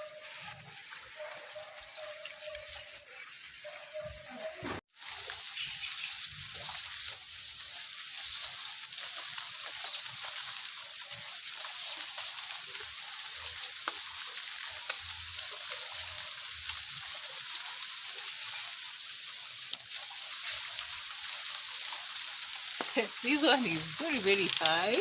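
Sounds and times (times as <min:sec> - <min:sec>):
water sloshing and splashing: 0:16.9 - 0:25.0.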